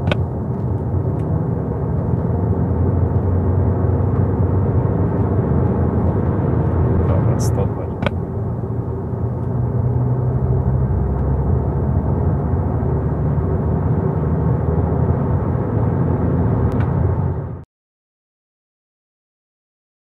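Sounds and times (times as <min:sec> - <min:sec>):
car engine drone accelerating: 0:00.0 - 0:17.6
road and wind noise: 0:00.0 - 0:17.6.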